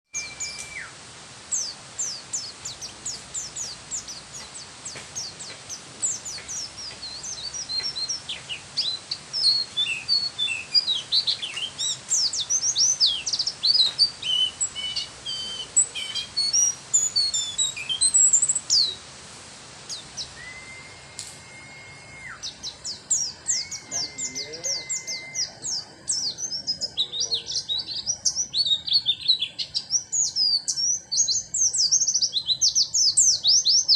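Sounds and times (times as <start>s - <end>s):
bird singing high chirps and trills: 0.0s - 19.1s, 19.8s - 33.9s
bird held whistles: 0.2s - 1.0s, 20.4s - 22.4s, 23.5s - 25.7s.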